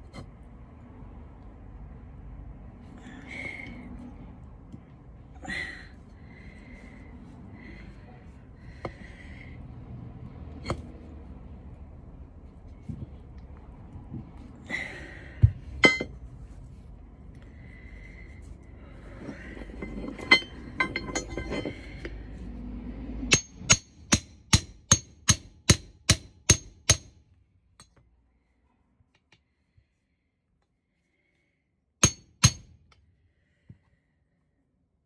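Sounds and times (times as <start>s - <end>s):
metal clinking: 19.8s - 21.9s
hammer striking metal: 23.3s - 27.2s, 32.0s - 32.8s.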